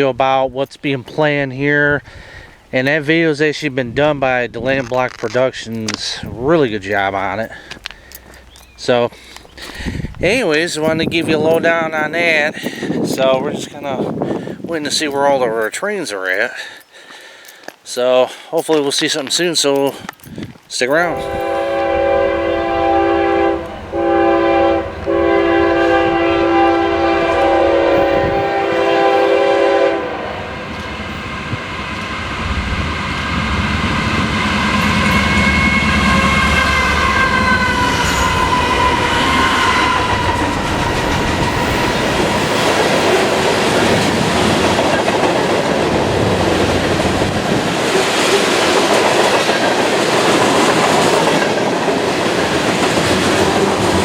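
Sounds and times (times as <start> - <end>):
train wheels rumbling on rail: 4.5 - 15.8, 20.9 - 54.0
locomotive air horn blasts: 21.0 - 30.8, 34.5 - 42.6.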